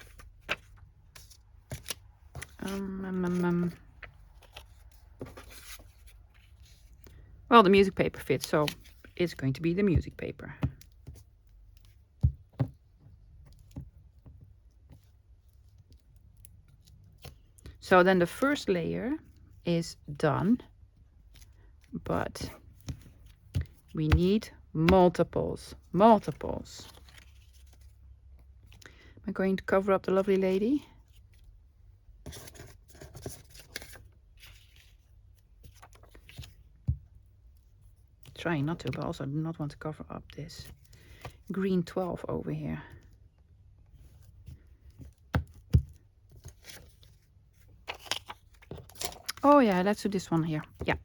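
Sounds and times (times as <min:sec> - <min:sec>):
paper rustling: 0:00.0 - 0:07.3, 0:46.3 - 0:49.9.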